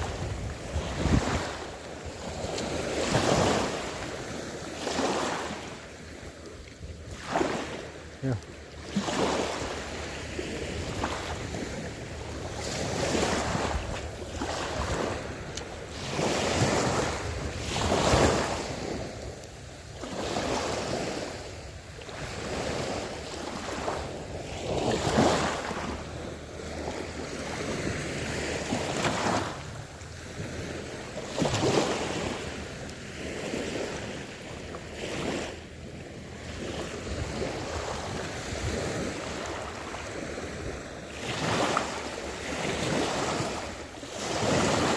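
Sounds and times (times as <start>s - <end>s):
wind buffeting microphone: 0.0s - 7.6s
sea waves washing in: 0.0s - 44.9s.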